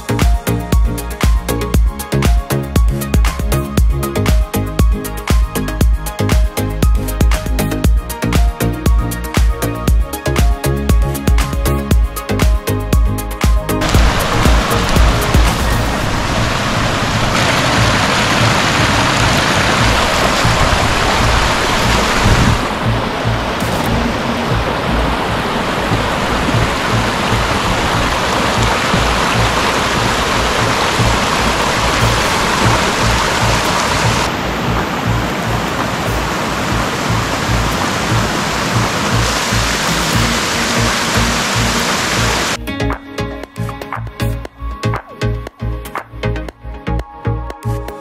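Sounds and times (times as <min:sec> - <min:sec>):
music with low beat: 0:00.0 - 0:16.2, 0:18.4 - 0:48.0
even rushing noise: 0:13.8 - 0:42.6
running water of a stream: 0:13.8 - 0:42.6.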